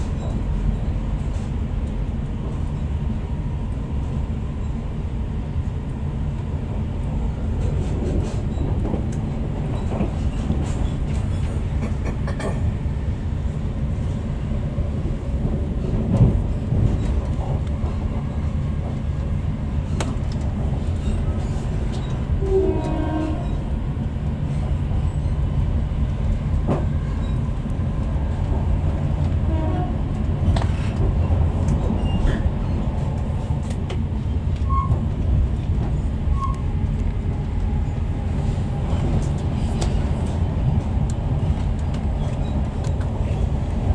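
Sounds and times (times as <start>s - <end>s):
train wheels rumbling on track: 0.0s - 43.9s.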